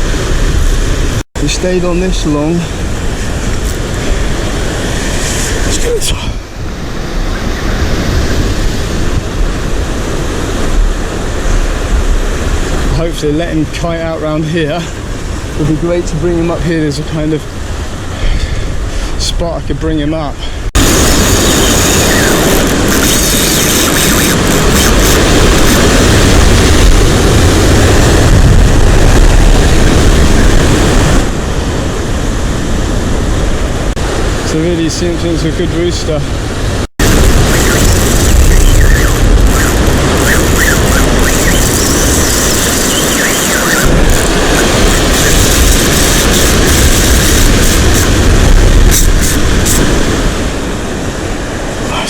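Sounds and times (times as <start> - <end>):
wind on microphone: 0.0 - 16.8, 20.4 - 34.5, 35.8 - 52.0
surf roaring: 0.0 - 52.0.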